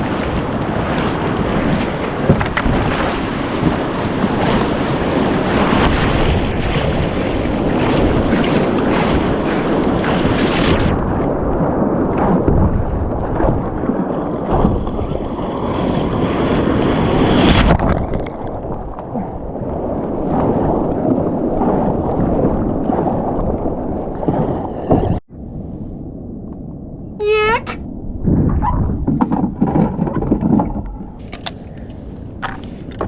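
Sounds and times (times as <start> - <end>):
water sloshing around kayak: 0.0 - 6.0, 12.4 - 18.8
wind buffeting microphone: 0.0 - 33.0.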